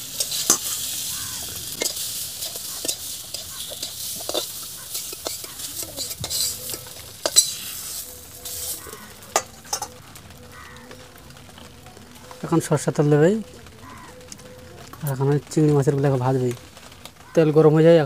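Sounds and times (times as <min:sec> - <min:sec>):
metal spatula scraping wok: 0:00.0 - 0:10.0
vegetables sizzling in oil: 0:00.0 - 0:18.0.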